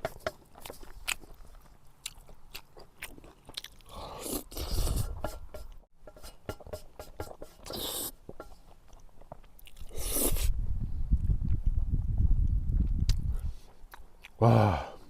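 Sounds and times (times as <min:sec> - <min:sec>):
crunchy chewing: 0:00.0 - 0:05.1, 0:07.6 - 0:10.5, 0:12.4 - 0:14.4.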